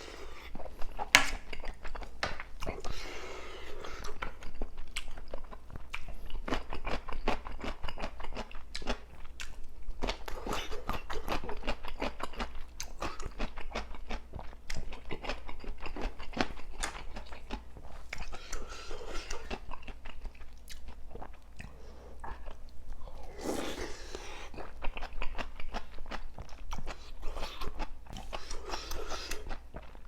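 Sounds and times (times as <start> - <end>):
chewing and crunching food: 0.0 - 30.0.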